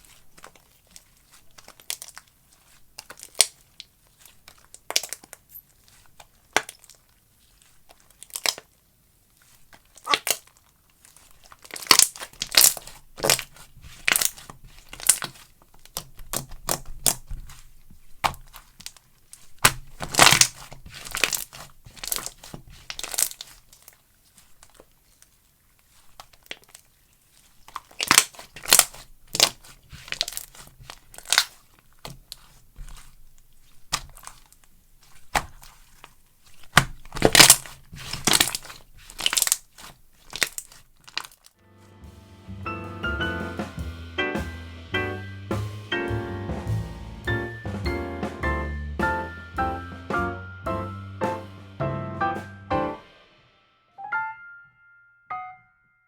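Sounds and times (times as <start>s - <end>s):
slime popping and crackling: 0.0s - 41.6s.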